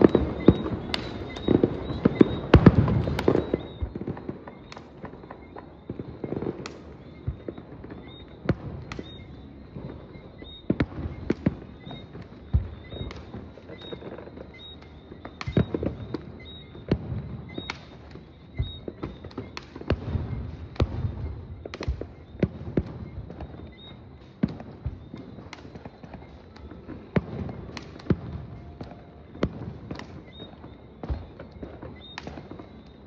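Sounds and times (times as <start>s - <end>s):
fireworks bangs: 0.0s - 33.0s.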